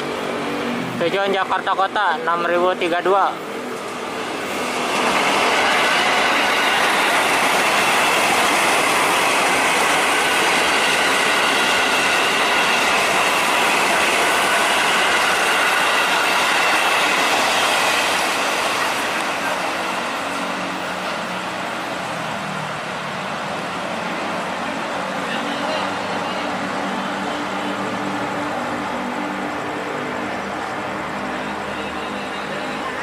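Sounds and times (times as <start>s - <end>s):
train wheels rushing on rails: 0.0s - 33.0s.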